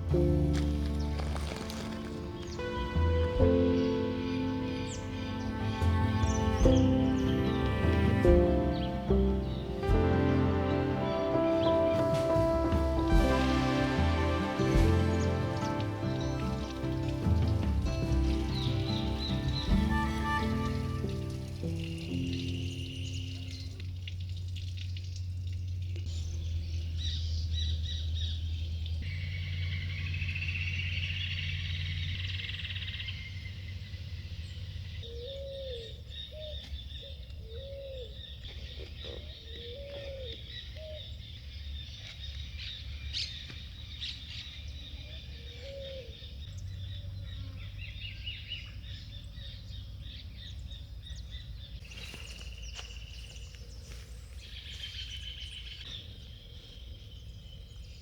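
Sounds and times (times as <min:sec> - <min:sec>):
low arched bird call: 0:00.0 - 0:23.8
small birds chirping: 0:00.0 - 0:58.0.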